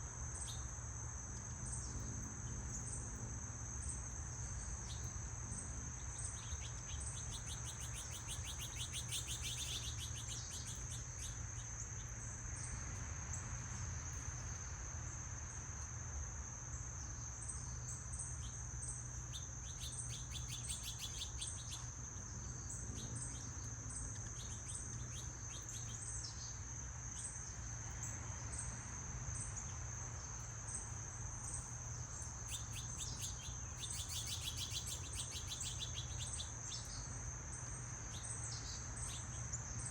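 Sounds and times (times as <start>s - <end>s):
insects trilling: 0.0s - 39.9s
birds chirping: 31.6s - 37.1s.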